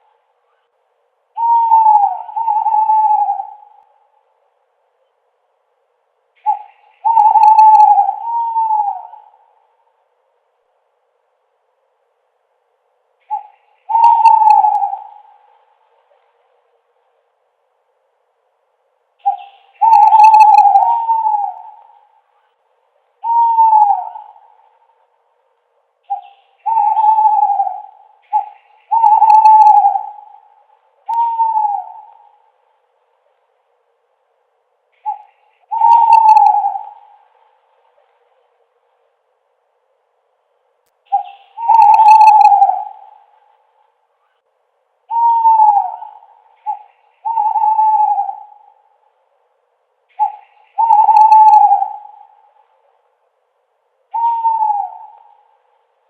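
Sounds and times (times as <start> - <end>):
owl hooting: 0.0 - 4.4, 6.4 - 10.0, 13.2 - 16.3, 19.2 - 25.2, 26.0 - 32.8, 34.9 - 38.6, 41.1 - 49.3, 50.0 - 53.0, 54.0 - 56.0.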